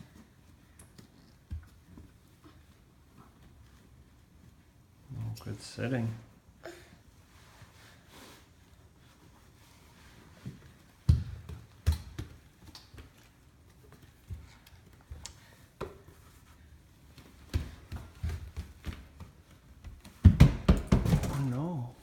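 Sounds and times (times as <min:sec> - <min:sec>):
knocks and thumps in a room: 0:10.4 - 0:13.2, 0:17.3 - 0:22.0.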